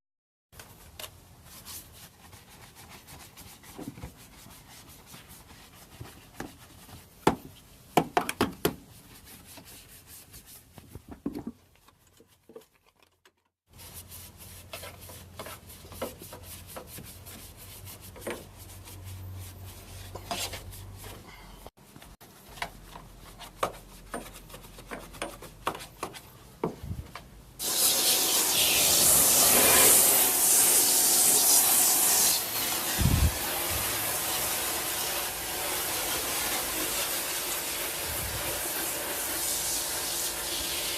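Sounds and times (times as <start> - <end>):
brushing and rubbing: 0.6 - 7.8, 8.8 - 26.3
spray hiss: 27.6 - 40.9.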